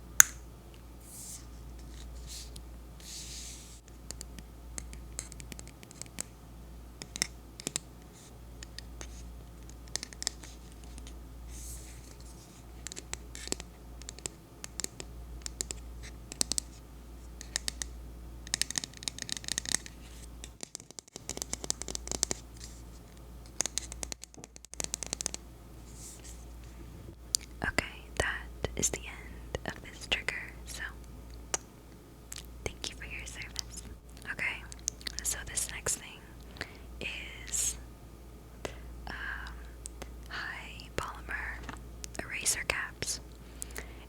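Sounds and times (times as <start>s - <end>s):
scratching and tapping on spray bottle: 18.5s - 22.8s, 23.5s - 25.4s.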